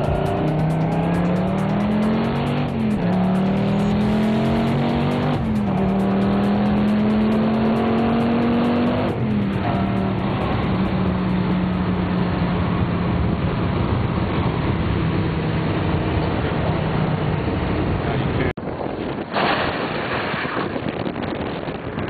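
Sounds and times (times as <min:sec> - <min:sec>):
car engine running hard: 0:00.0 - 0:22.0
wind and road rush: 0:00.0 - 0:22.0
wind buffeting the microphone: 0:18.6 - 0:22.0.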